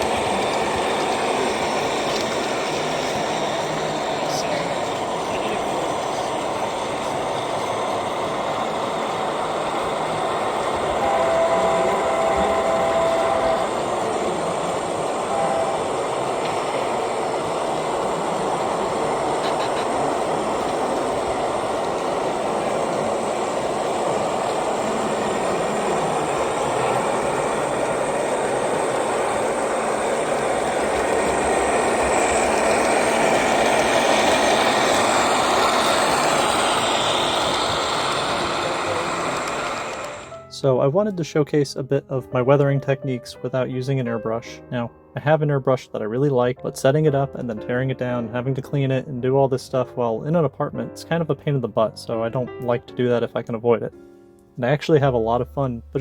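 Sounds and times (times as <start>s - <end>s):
model diesel locomotive running: 0.0s - 41.3s, 42.3s - 53.5s
locomotive horn blast: 10.7s - 17.4s.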